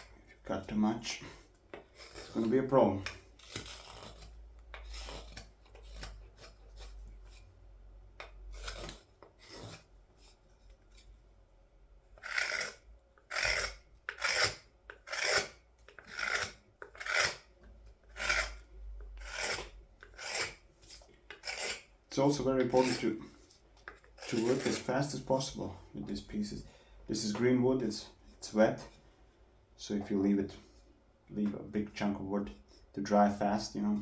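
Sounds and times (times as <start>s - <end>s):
knife shaving green wood: 0.0s - 7.6s, 8.2s - 11.1s, 12.2s - 25.4s.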